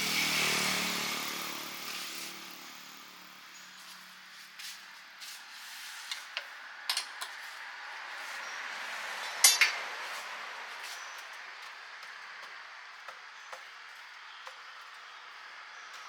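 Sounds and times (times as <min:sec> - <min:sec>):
cooking utensils clinking: 0:06.9 - 0:07.4, 0:09.3 - 0:09.8.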